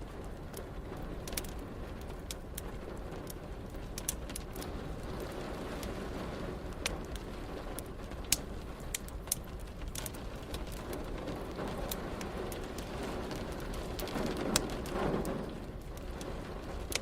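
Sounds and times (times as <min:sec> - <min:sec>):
fireplace crackling with pops: 0:00.0 - 0:17.0
rain hissing: 0:04.6 - 0:17.0.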